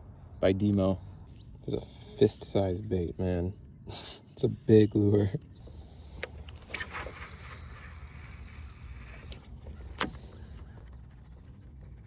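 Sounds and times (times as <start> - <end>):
fishing reel spool spinning: 4.4 - 12.0
sharp click: 6.2 - 10.7.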